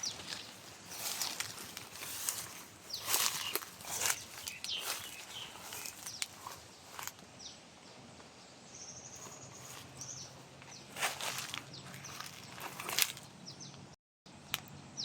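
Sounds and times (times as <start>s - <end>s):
footsteps on garden path: 0.0s - 7.3s, 9.1s - 13.4s.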